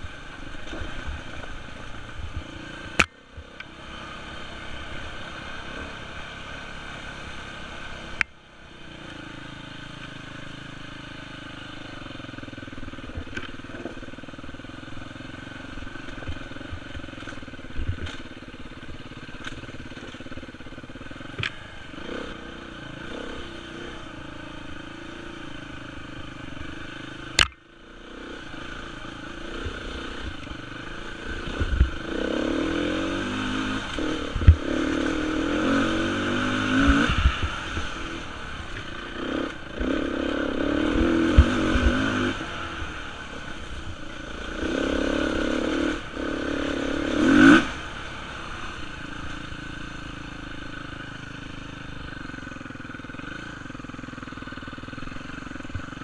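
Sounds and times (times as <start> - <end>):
motorcycle engine revving: 0.0 - 56.0
sharp crack: 27.3 - 27.6.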